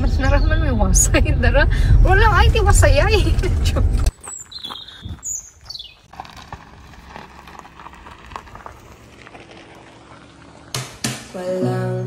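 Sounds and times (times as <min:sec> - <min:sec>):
bird chirping: 0:04.1 - 0:06.1.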